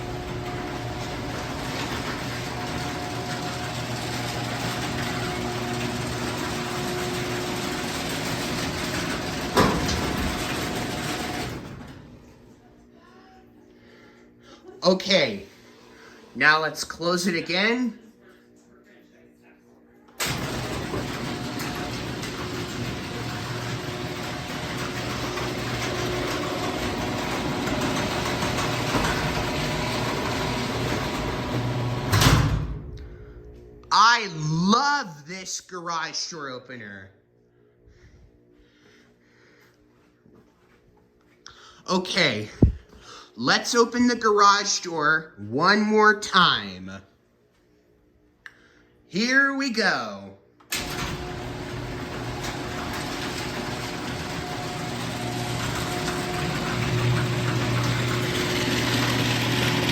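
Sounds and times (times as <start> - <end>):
garage door opener motor humming: 0.0 - 12.8, 20.1 - 34.1, 50.7 - 59.9.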